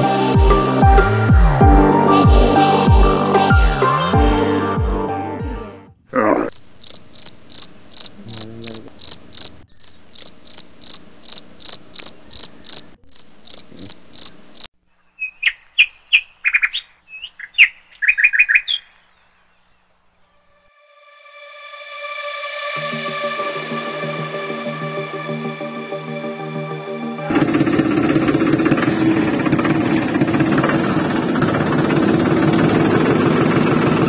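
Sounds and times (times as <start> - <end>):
background music: 0.0 - 6.0, 20.5 - 34.0
insect chirping: 6.4 - 19.0
bird chirping: 6.4 - 20.6.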